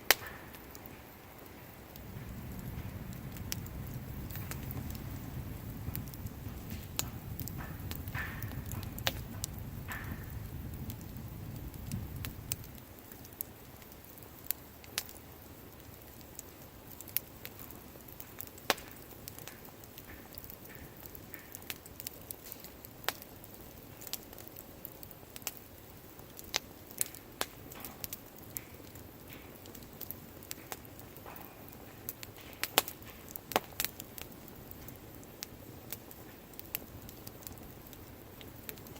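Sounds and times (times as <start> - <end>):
bonfire crackling: 0.0 - 38.9
faint hiss: 0.0 - 38.9
low rumble: 1.8 - 12.8.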